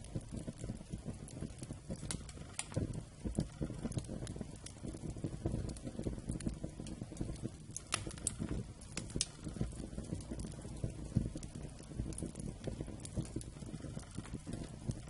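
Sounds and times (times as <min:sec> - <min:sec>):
campfire crackling: 0:00.0 - 0:15.0
sharp pops of burning wood: 0:00.0 - 0:15.0.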